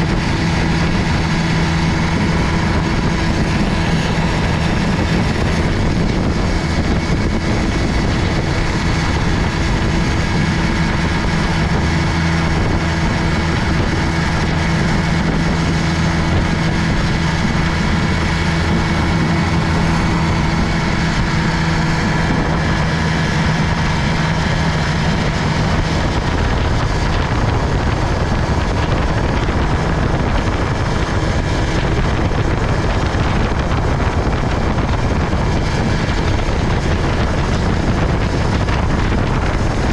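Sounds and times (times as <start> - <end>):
outboard motor running: 0.0 - 39.9
rushing wind: 0.0 - 39.9
water noise: 0.0 - 39.9.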